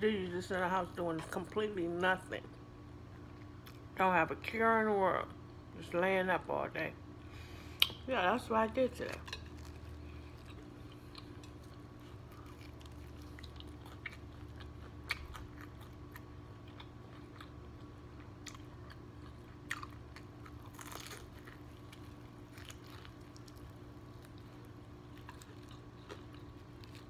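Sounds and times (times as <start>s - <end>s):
chewing crispy fried chicken: 9.0s - 27.0s.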